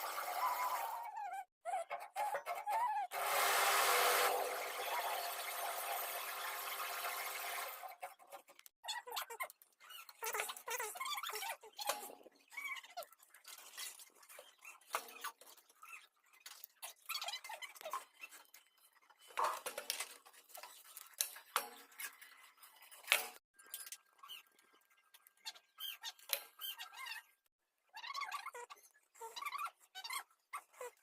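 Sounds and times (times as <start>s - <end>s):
small tools clicking and scraping: 7.8s - 27.3s.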